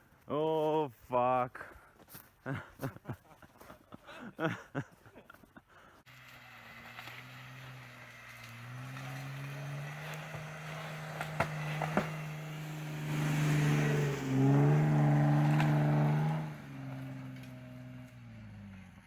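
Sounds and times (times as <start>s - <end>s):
vehicle engine running: 6.1s - 19.0s.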